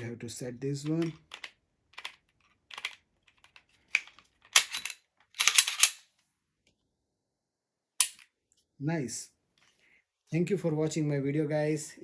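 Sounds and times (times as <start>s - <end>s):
pistol parts clicking and scraping: 0.8s - 6.1s, 8.0s - 8.4s.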